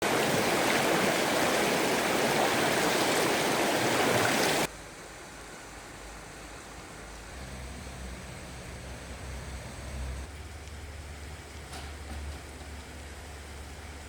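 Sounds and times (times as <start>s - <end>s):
stream water rushing: 0.0s - 4.7s.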